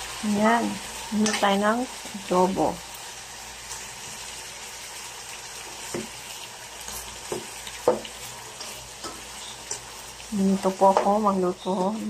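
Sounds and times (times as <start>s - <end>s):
chicken sizzling in oil: 0.0s - 12.0s
spatula knocking wok: 5.8s - 6.2s, 7.2s - 10.0s, 10.6s - 11.8s.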